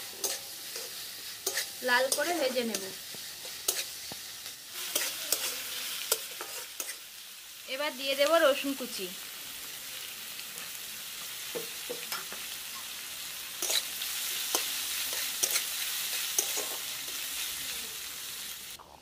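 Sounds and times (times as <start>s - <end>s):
spatula scraping a pan: 0.0s - 4.1s, 4.8s - 7.0s
food sizzling in oil: 0.0s - 18.8s.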